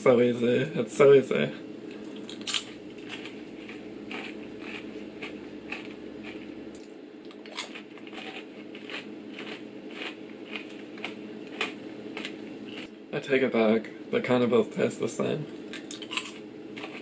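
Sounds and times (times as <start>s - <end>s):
person chewing popcorn: 1.9s - 12.9s, 15.7s - 17.0s.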